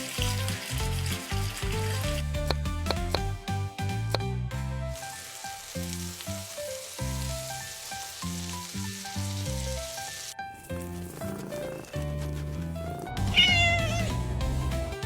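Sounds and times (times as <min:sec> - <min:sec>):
food sizzling in hot oil: 0:00.0 - 0:04.0, 0:04.9 - 0:12.0
background music: 0:00.0 - 0:15.0.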